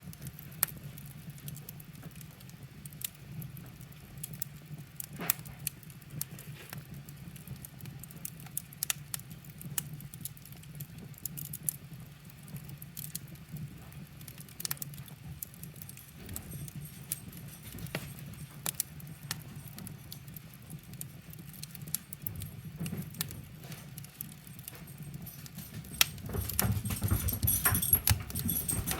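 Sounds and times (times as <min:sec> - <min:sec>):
wood fire crackling: 0:00.0 - 0:28.9
dog paws scrabbling and thumping: 0:14.9 - 0:20.3, 0:22.2 - 0:28.9.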